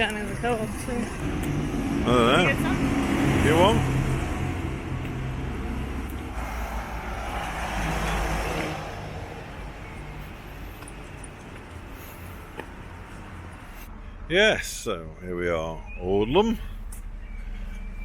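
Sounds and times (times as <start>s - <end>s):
car driving past: 1.2s - 10.8s.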